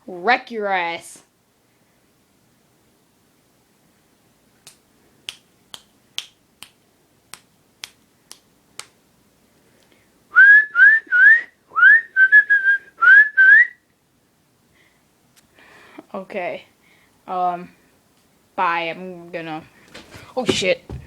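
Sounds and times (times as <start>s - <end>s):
fingers snapping: 4.6s - 9.0s.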